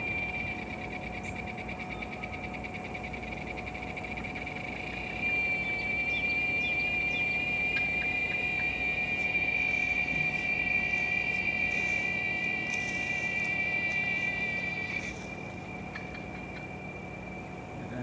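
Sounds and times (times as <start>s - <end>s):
cicada singing high-pitched drone: 0.0s - 18.0s.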